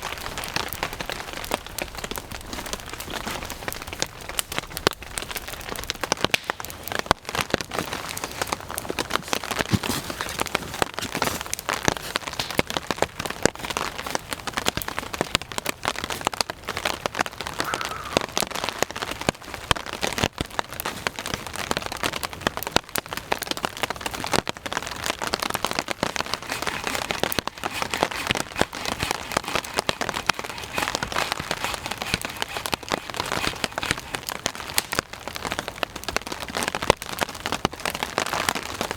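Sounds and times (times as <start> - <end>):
close raindrop hits: 0.0 - 10.2
steady rain falling: 0.0 - 38.9.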